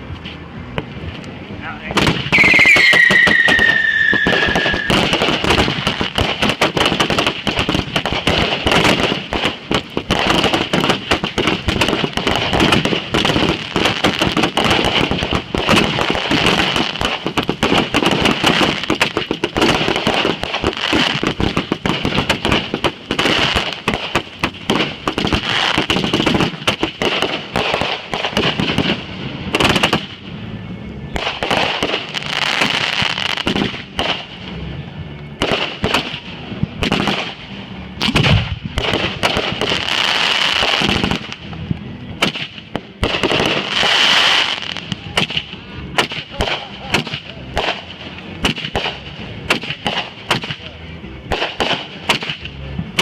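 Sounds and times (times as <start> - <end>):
fireworks crackling and popping: 0.0 - 53.0
firework whistle falling in pitch: 2.3 - 5.1.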